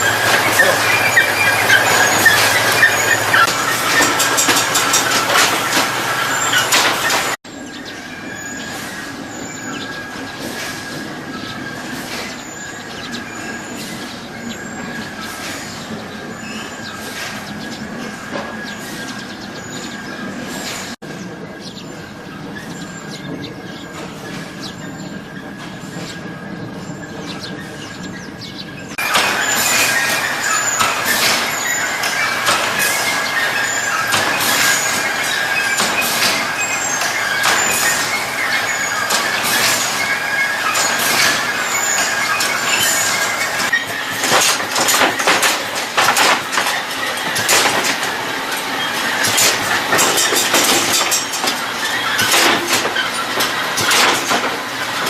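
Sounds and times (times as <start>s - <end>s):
machinery whining: 0.0s - 55.0s
rattling clicks: 0.2s - 7.4s, 40.7s - 55.0s.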